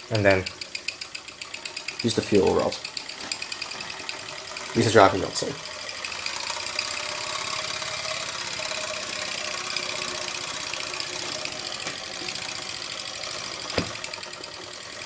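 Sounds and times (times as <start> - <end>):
model steam engine chuffing: 0.0 - 15.0
person talking: 2.0 - 2.8, 4.8 - 5.6
sharp click: 13.7 - 14.1.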